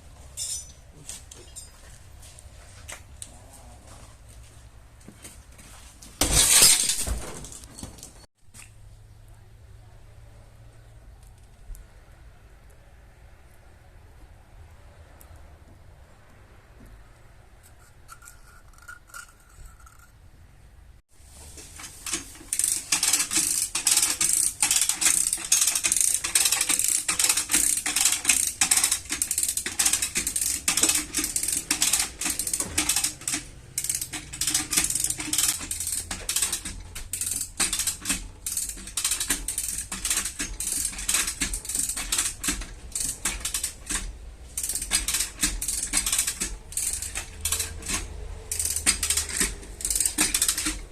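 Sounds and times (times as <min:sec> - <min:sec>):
metallic clicking and tapping tools: 0:00.4 - 0:01.8, 0:21.8 - 0:50.9.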